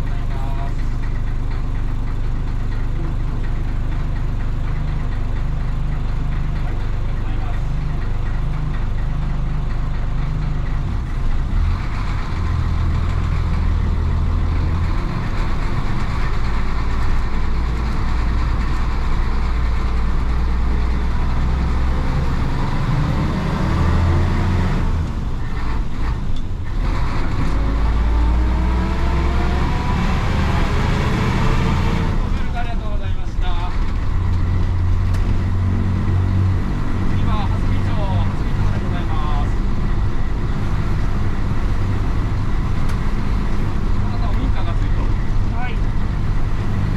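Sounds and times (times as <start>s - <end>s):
bus diesel engine running: 0.0s - 46.9s.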